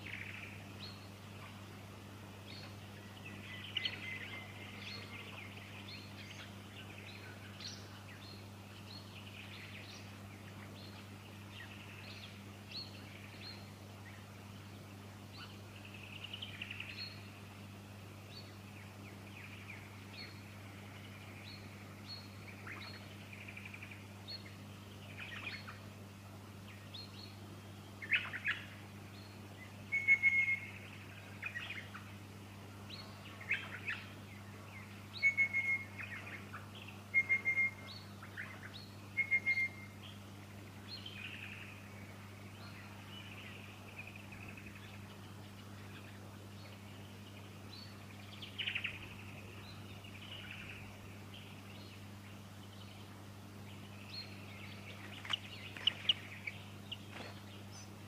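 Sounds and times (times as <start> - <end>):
low hum: 0.0 - 58.0
small birds chirping: 0.0 - 58.0
whistled bird notes: 29.9 - 32.0, 35.1 - 40.2.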